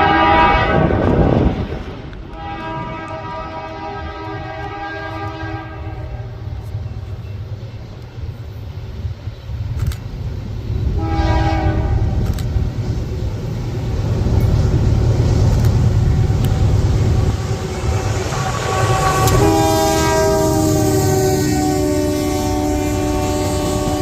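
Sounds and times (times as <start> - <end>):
locomotive horn blast: 0.0 - 1.6, 2.3 - 6.7, 10.9 - 12.2, 16.7 - 24.0
train rumbling: 0.0 - 24.0
wheels clicking on rails: 11.9 - 19.8.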